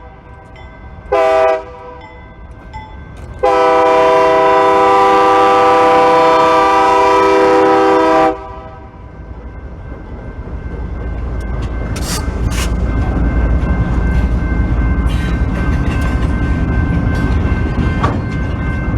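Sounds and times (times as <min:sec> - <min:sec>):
train rumble: 0:00.0 - 0:18.9
locomotive air horn blast: 0:01.1 - 0:02.0, 0:03.4 - 0:08.9.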